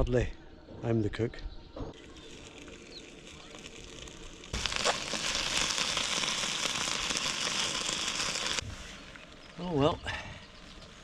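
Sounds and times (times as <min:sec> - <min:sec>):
rain patter: 0:02.1 - 0:08.6.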